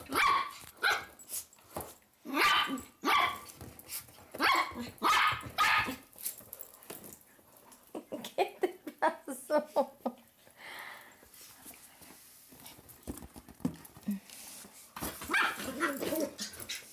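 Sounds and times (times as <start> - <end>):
dog barking: 2.3 - 3.4, 4.4 - 6.0.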